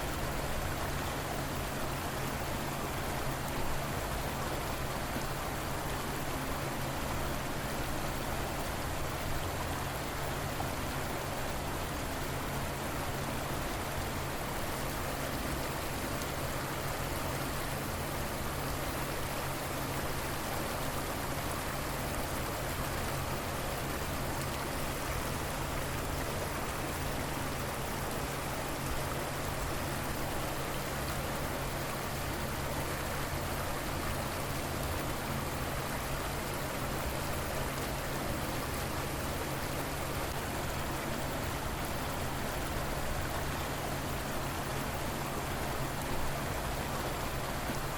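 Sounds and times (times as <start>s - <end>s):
river water flowing: 0.0s - 47.9s.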